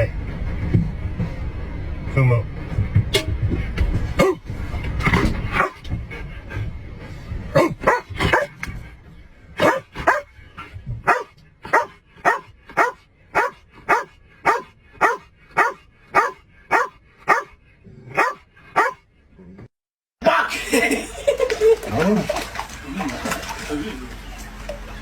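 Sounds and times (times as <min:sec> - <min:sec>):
low rumbling noise: 0:00.0 - 0:19.7
dog barking: 0:05.5 - 0:05.8, 0:07.6 - 0:08.6, 0:09.6 - 0:10.3, 0:11.0 - 0:19.0.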